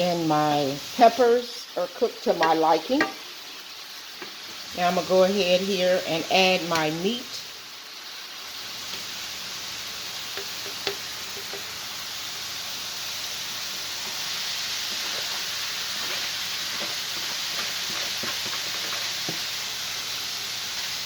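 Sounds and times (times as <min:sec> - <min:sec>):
vegetables sizzling in a pan: 0:00.0 - 0:21.0
utensil clicking against pan: 0:10.3 - 0:11.7.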